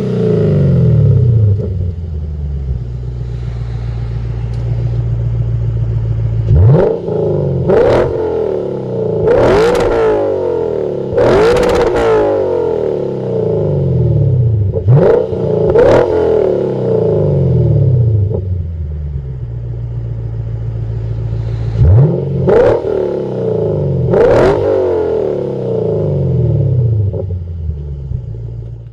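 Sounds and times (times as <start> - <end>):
car engine idling: 0.0 - 28.9
car engine revving: 0.0 - 28.9.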